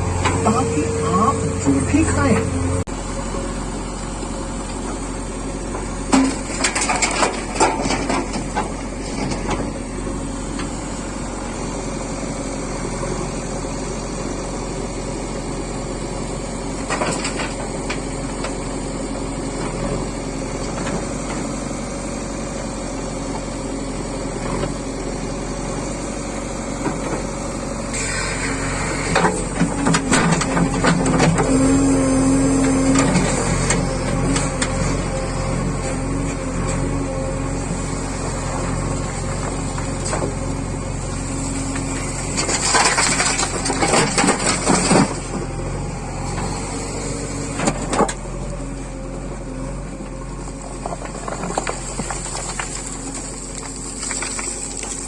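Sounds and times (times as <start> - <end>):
machinery clanks and rattles: 0.0 - 2.9, 4.6 - 11.4, 16.7 - 18.8, 28.0 - 36.9, 38.6 - 48.4, 50.0 - 55.0
diesel machinery running: 0.0 - 55.0.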